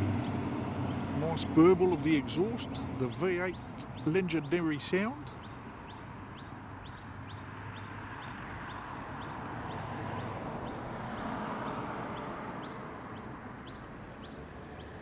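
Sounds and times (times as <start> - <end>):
small bird chirping: 2.0 - 4.6, 12.6 - 15.0.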